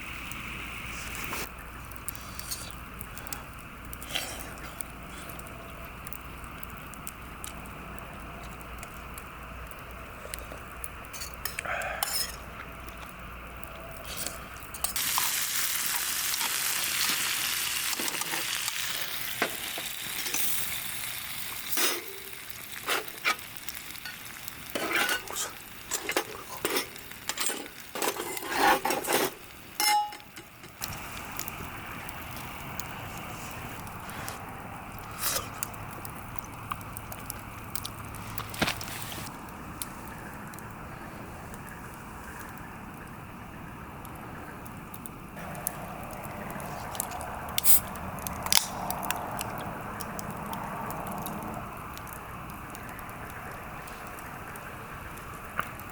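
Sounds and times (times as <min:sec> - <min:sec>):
food sizzling in hot pan: 0:14.1 - 0:34.1
utensil scraping pan: 0:24.8 - 0:30.2
utensil clinking against pan: 0:29.8 - 0:30.5.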